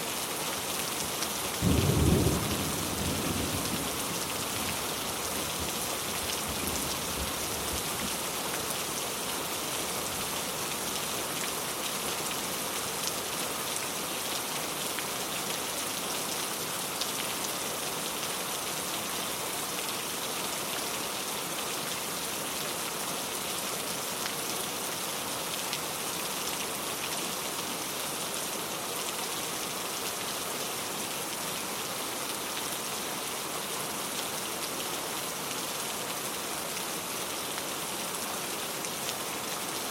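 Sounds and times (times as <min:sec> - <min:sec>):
heavy rain pattering: 0:00.6 - 0:11.9.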